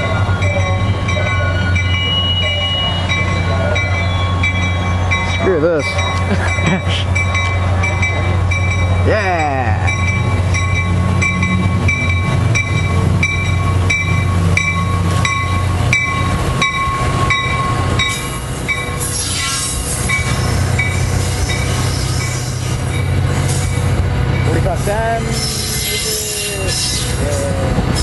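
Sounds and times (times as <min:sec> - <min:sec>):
train wheels squealing: 0:00.0 - 0:06.2, 0:16.9 - 0:23.9, 0:25.3 - 0:28.0
locomotive drone: 0:00.0 - 0:28.0.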